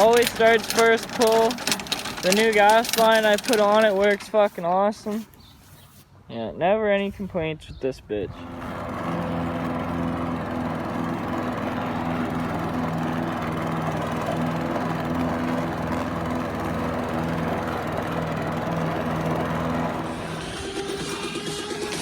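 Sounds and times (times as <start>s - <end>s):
lawnmower engine running: 0.0s - 6.0s, 8.3s - 22.0s.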